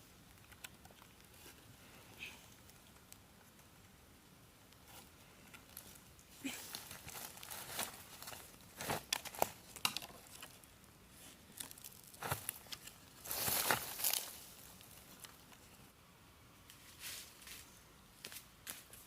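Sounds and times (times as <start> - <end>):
crinkling and crackling: 4.7 - 15.9.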